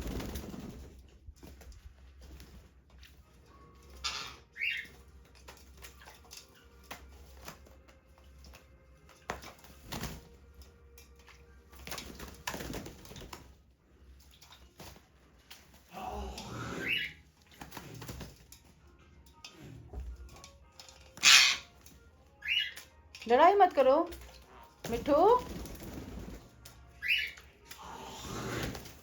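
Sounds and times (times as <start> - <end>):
parrot flapping wings: 0.0 - 13.6, 14.2 - 18.7, 24.0 - 29.0
parrot squawk: 4.0 - 4.9, 16.4 - 17.2, 21.2 - 21.8, 22.4 - 22.8, 27.0 - 27.4.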